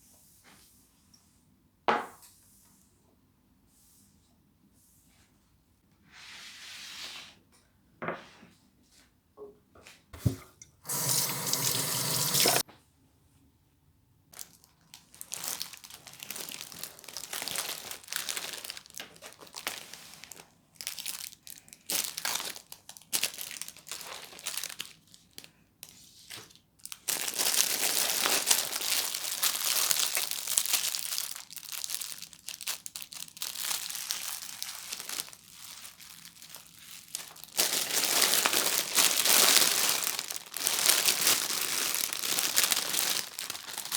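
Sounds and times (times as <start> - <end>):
kitchen tap running: 10.2 - 12.6
food preparation rustling and crunching: 14.3 - 43.9.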